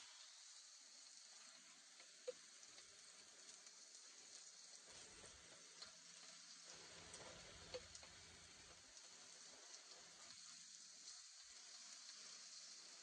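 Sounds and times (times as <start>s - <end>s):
meat and onions sizzling in a pan: 0.0s - 13.0s.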